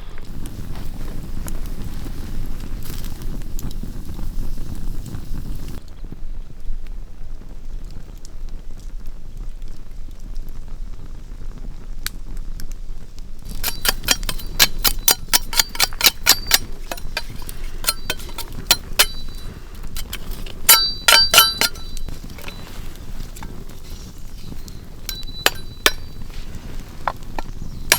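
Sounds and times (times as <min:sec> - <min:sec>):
metal objects clinking: 0:13.5 - 0:27.9.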